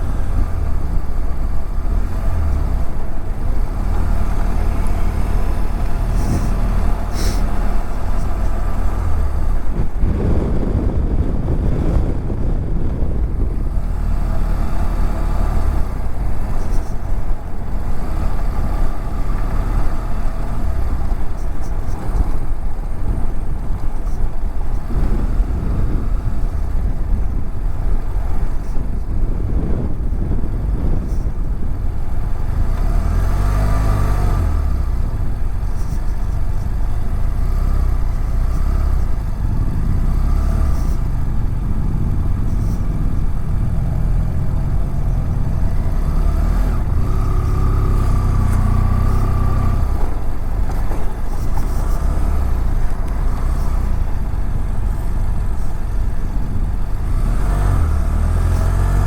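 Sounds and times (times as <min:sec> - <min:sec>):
heavy low rumble: 0:00.0 - 0:59.0
motorcycle engine running: 0:00.0 - 0:59.0.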